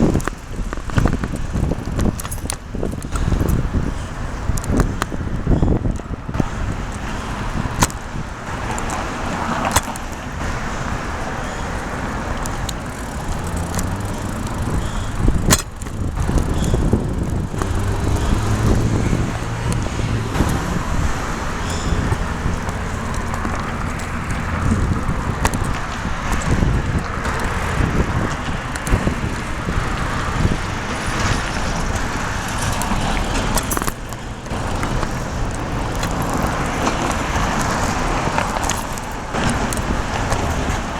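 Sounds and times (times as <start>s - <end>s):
passing cars rumble: 0.0s - 40.9s
vehicle engine humming: 0.0s - 40.9s
sharp clicks and knocks: 12.4s - 29.4s.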